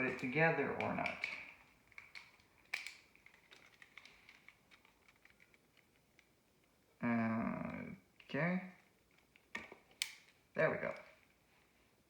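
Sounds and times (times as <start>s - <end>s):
toy parts clicking and ticking: 0.0s - 6.8s, 8.2s - 11.1s.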